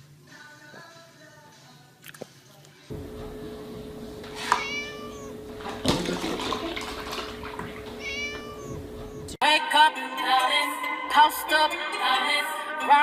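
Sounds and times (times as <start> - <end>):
music with singing: 0.0 - 2.9, 9.4 - 13.0
kitten mewing: 4.0 - 9.3.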